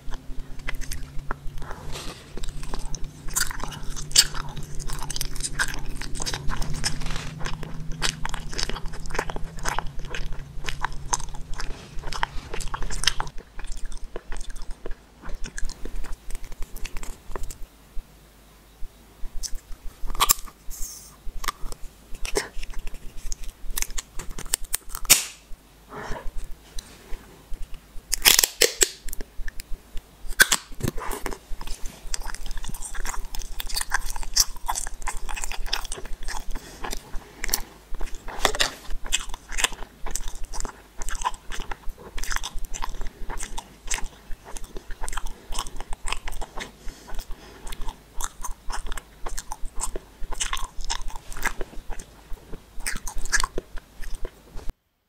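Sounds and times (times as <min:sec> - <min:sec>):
gummy candy being chewed: 0:00.0 - 0:17.6, 0:19.3 - 0:20.6, 0:21.3 - 0:25.4, 0:27.5 - 0:54.7.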